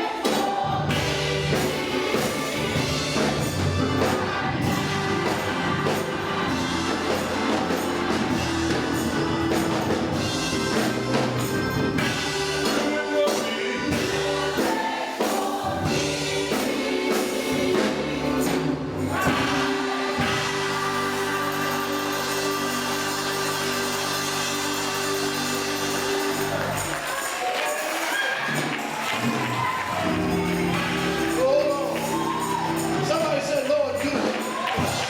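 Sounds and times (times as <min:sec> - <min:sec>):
choir singing: 0:00.0 - 0:33.6
instrumental accompaniment with beat: 0:00.0 - 0:35.0.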